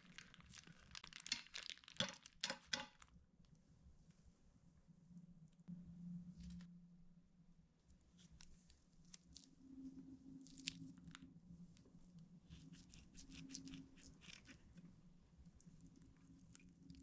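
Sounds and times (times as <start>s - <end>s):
slime crackling and clicking: 0.2s - 3.0s
low steady hum: 3.2s - 17.0s.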